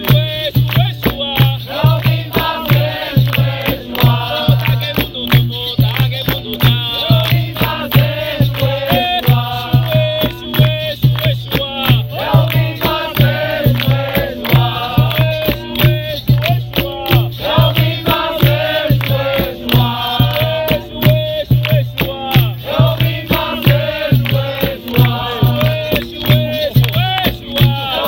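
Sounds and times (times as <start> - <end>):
drum beat: 0.0 - 28.0
rattling percussion: 0.0 - 28.0
group of voices chanting: 1.7 - 4.8, 12.1 - 15.5, 16.9 - 21.1, 21.8 - 28.0.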